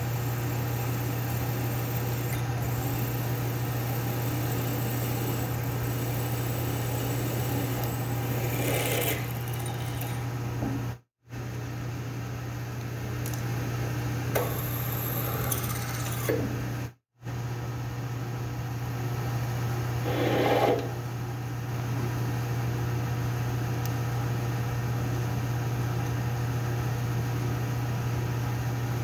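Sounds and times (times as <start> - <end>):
machine tool motor hum: 0.0 - 10.4.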